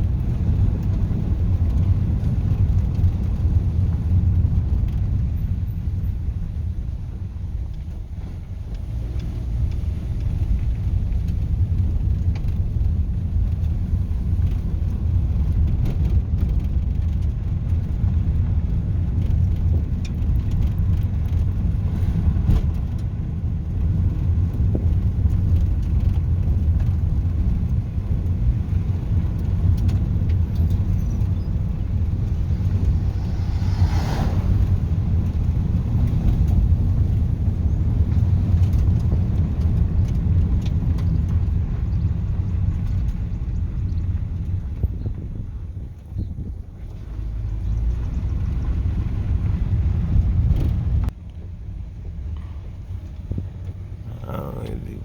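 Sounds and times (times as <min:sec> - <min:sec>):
car engine and road noise: 0:00.0 - 0:55.0
brief rushing sound: 0:32.3 - 0:35.6.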